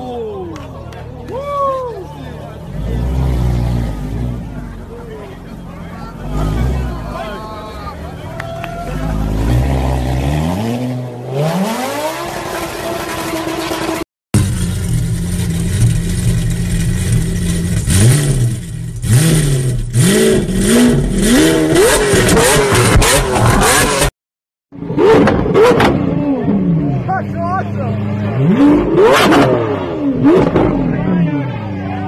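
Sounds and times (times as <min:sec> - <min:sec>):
car engine idling: 0:00.0 - 0:09.5, 0:12.4 - 0:23.0
car engine accelerating hard: 0:02.2 - 0:24.1, 0:24.8 - 0:32.0
car engine revving: 0:02.4 - 0:24.1, 0:24.8 - 0:32.0.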